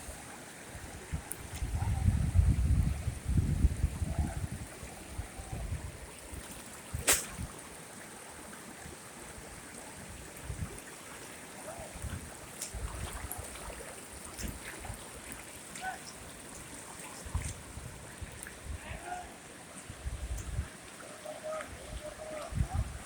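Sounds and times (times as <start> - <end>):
sharp click: 7.1 - 7.4.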